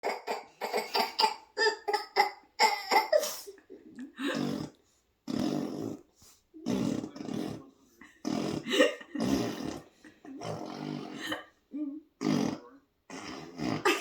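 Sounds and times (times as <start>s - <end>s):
baby giggling: 0.0s - 3.2s
mouth-made fart noises: 4.3s - 11.2s, 12.2s - 14.0s.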